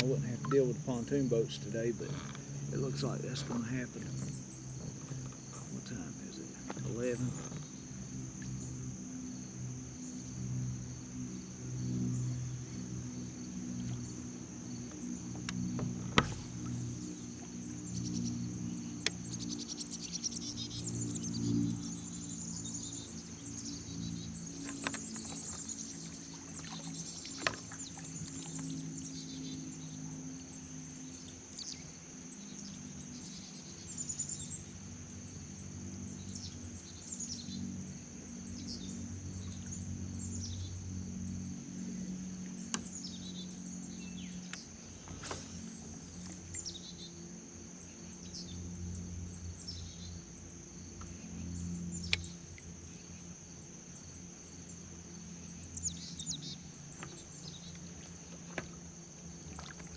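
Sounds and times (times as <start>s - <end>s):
birds chirping: 0.0s - 8.7s
high insect drone: 0.0s - 59.9s
low steady hum: 0.0s - 59.9s.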